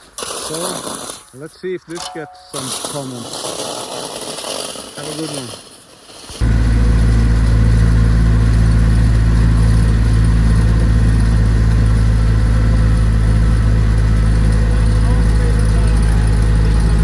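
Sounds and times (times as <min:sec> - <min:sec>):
tractor engine running: 0:06.3 - 0:17.0.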